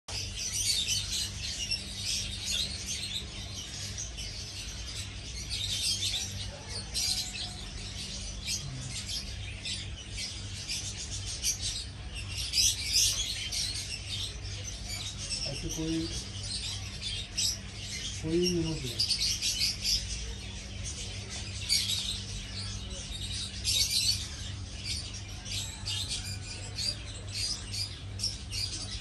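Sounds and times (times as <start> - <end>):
small birds chirping: 0.1 - 29.0.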